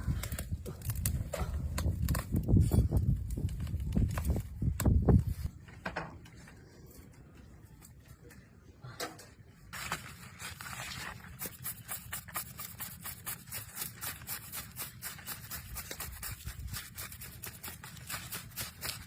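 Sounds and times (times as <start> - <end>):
rapid scraping strokes: 10.5 - 19.0.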